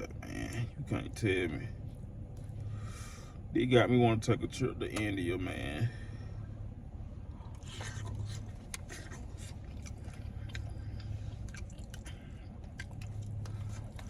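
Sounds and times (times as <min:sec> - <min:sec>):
low hum: 0:00.0 - 0:14.0
person chewing food: 0:07.3 - 0:14.0.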